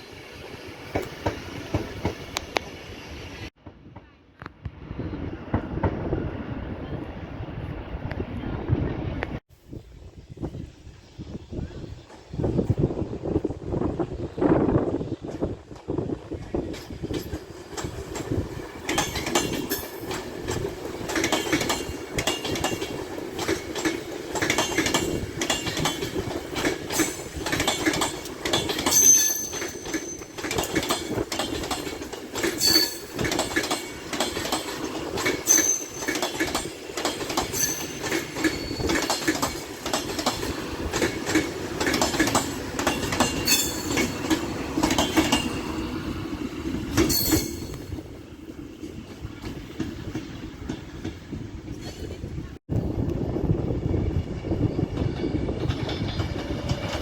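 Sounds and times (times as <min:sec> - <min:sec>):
train wheels clattering over rails: 0:00.0 - 0:02.7, 0:15.2 - 0:46.0
high wheel squeals: 0:28.8 - 0:30.4, 0:32.5 - 0:33.3, 0:35.4 - 0:36.3, 0:37.5 - 0:39.1, 0:43.3 - 0:44.3, 0:47.0 - 0:48.0.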